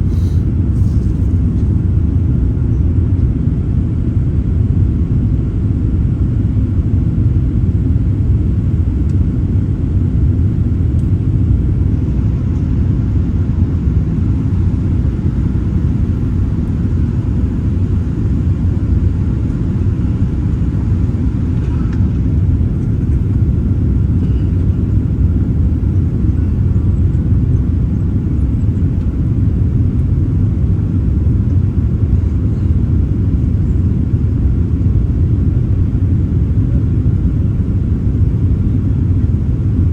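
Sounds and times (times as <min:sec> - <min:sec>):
airliner low rumble: 0:00.0 - 0:39.9.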